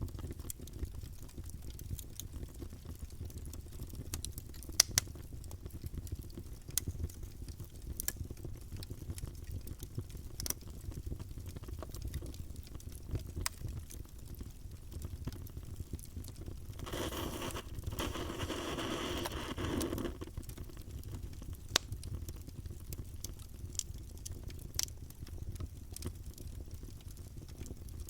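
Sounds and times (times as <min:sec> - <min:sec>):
wood crackling and popping: 0:00.0 - 0:28.0
fire low rumble: 0:14.7 - 0:21.6.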